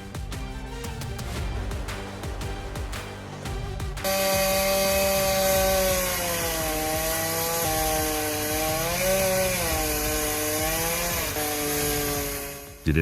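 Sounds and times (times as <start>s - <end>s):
chainsaw cutting wood: 4.0s - 12.9s.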